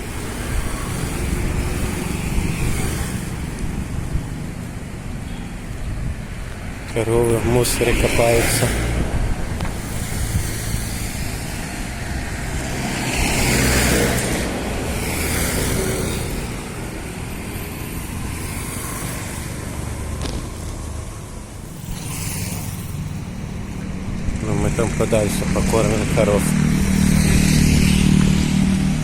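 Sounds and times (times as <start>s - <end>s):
traffic engine rumble: 0.0s - 29.0s
vehicles passing: 0.0s - 29.0s.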